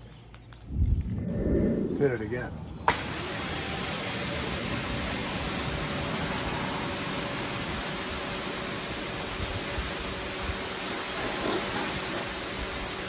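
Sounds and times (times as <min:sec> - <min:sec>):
pressure washer spraying water: 0:02.9 - 0:13.0
pump motor humming: 0:02.9 - 0:13.0.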